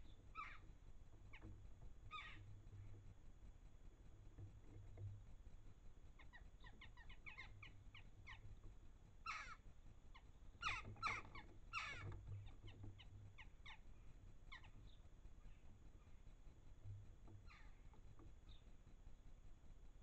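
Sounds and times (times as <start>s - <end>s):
harsh bird calls: 0.0s - 0.7s, 2.1s - 2.5s, 6.2s - 8.5s, 9.2s - 16.2s
birds chirping faintly: 0.0s - 20.0s.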